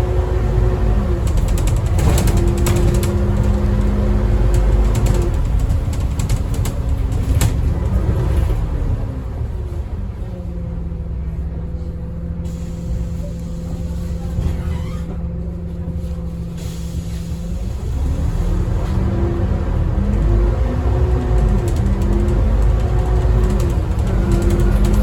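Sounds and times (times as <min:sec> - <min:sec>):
bus engine droning: 0:00.0 - 0:25.0
sharp clicks and rattles: 0:01.2 - 0:08.0, 0:21.0 - 0:25.0.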